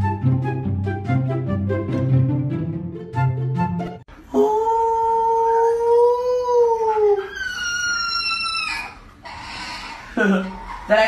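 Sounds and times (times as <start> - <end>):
huskies howling: 4.8 - 11.0.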